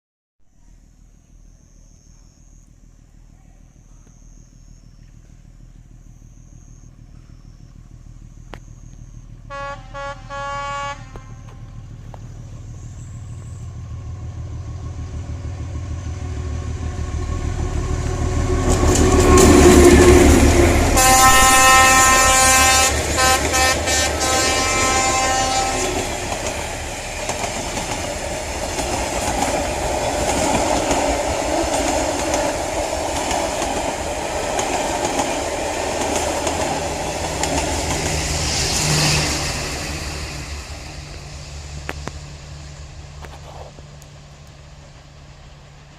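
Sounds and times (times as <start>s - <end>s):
locomotive engine rumble: 0.5s - 45.9s
locomotive horn toots: 9.5s - 11.9s, 18.9s - 26.2s
train wheels clattering on rail joints: 17.7s - 44.9s.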